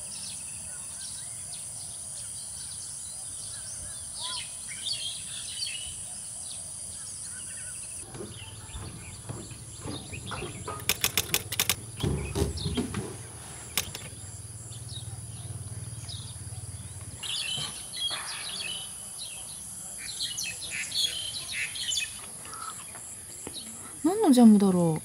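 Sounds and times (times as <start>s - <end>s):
birds chirping: 0.0s - 25.0s
high insect drone: 0.0s - 25.0s
sharp clicks: 10.2s - 12.1s, 13.7s - 14.1s.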